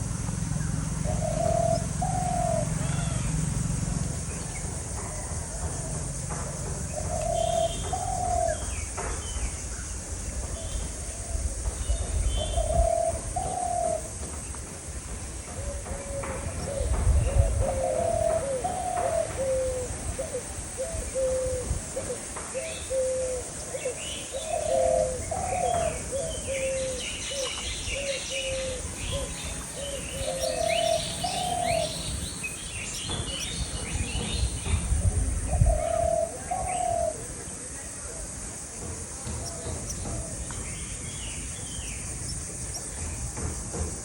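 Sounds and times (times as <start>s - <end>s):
bird calling: 0.0s - 14.5s, 15.1s - 44.0s
small birds chirping: 0.0s - 21.4s, 22.5s - 44.0s
low rumbles: 27.7s - 36.6s.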